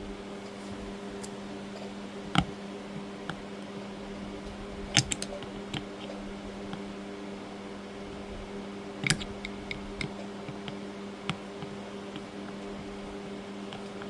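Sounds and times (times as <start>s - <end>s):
steady background hum: 0.0s - 14.0s
screwdriver clicks and taps: 9.0s - 12.6s.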